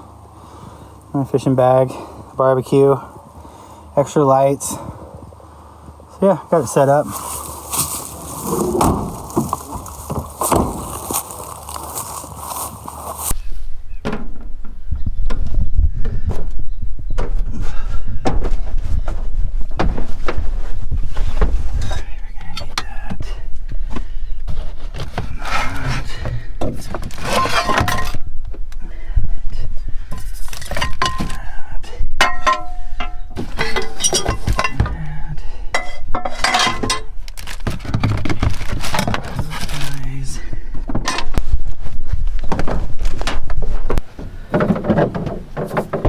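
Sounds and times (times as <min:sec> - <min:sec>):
camp gear clattering: 0:06.6 - 0:13.4, 0:24.5 - 0:28.3, 0:30.1 - 0:31.6, 0:32.2 - 0:46.0.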